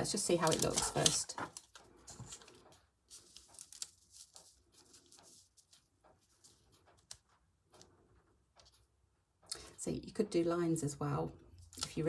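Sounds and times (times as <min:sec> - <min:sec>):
paper and fabric rustling: 0:00.0 - 0:09.0.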